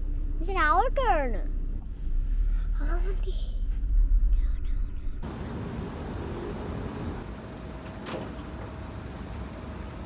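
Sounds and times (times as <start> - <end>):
car wash machinery rushing: 5.2 - 10.0.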